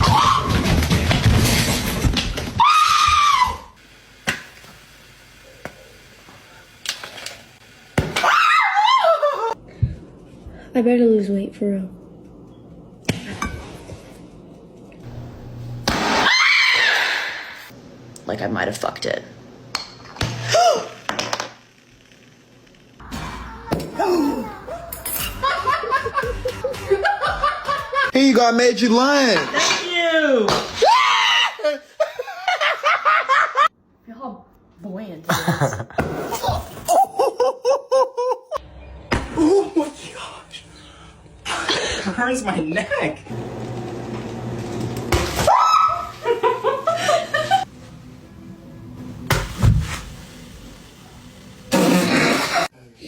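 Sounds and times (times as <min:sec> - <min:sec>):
rising cry: 0:02.6 - 0:03.8, 0:08.2 - 0:09.6, 0:45.4 - 0:46.2
person laughing: 0:08.8 - 0:09.6, 0:24.0 - 0:28.1, 0:35.3 - 0:38.6, 0:46.2 - 0:47.7.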